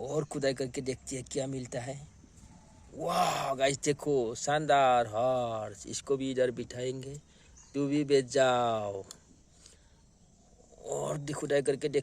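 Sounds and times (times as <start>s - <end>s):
faint ticks: 8.9s - 10.0s.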